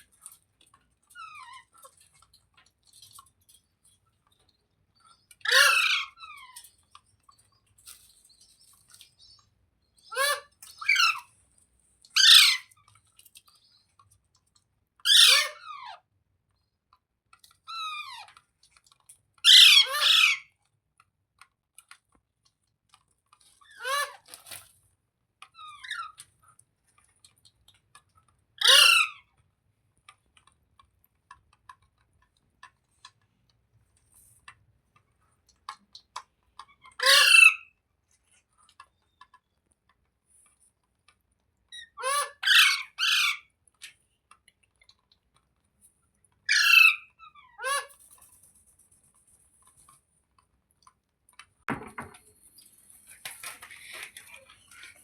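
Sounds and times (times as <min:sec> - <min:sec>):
parakeet squawking: 0:05.5 - 0:06.2, 0:12.2 - 0:12.7, 0:15.1 - 0:15.8, 0:19.5 - 0:20.4, 0:28.6 - 0:29.2, 0:36.8 - 0:37.6, 0:41.9 - 0:43.5, 0:46.5 - 0:47.9.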